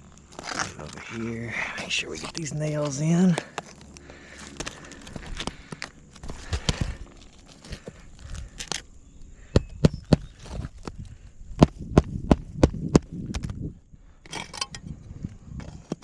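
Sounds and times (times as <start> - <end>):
shingles scraping and rustling: 0.3 - 1.3, 2.2 - 8.8.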